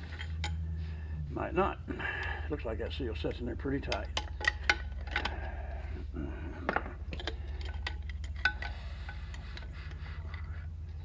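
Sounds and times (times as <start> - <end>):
steady low hum: 0.0 - 11.0
hand tool tapping on metal: 3.8 - 5.3.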